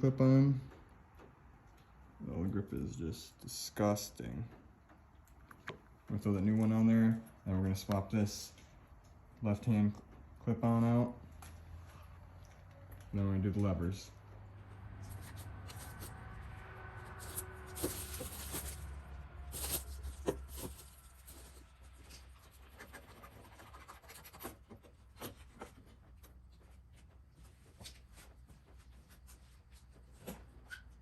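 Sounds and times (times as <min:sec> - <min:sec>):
hands rubbing and scraping parts: 0:14.9 - 0:31.0.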